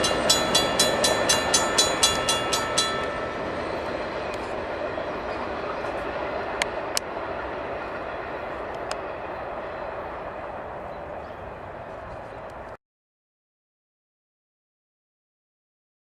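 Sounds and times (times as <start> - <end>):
sharp rail clicks: 0.0 - 3.3, 5.9 - 7.2, 8.5 - 9.1
freight train wheels rumbling: 0.0 - 12.8.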